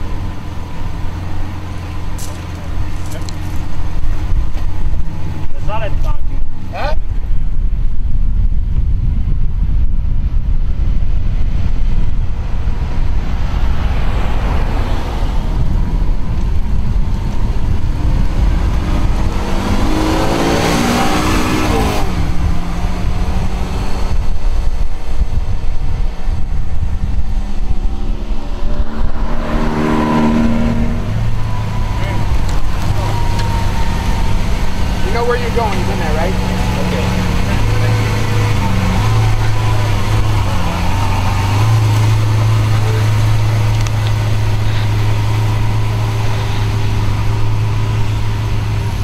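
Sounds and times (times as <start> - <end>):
car engine revving and passing: 11.4 - 49.0.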